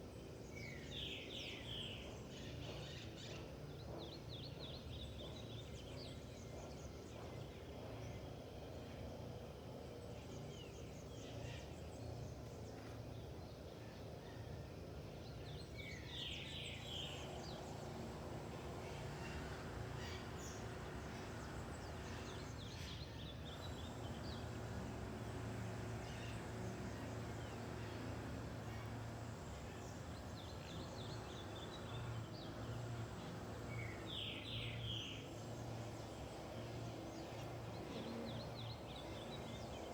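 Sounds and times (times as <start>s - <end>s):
birds calling: 15.8s - 39.9s.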